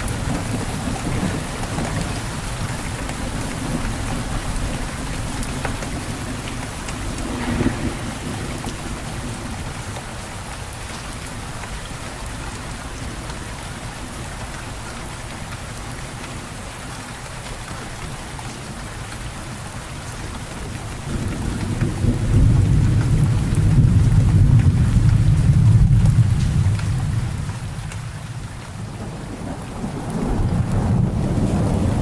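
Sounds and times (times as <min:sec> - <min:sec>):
low rumble of thunder: 0:00.0 - 0:10.6, 0:21.0 - 0:32.0
steady rain falling: 0:00.0 - 0:32.0.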